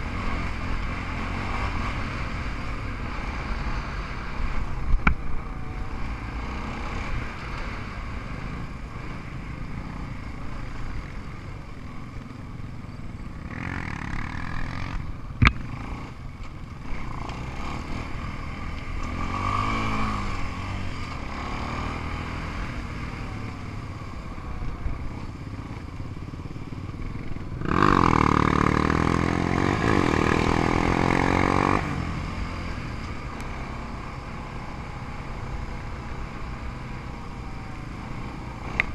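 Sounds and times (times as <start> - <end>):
atv and dirt bike engines running: 0.0 - 38.9.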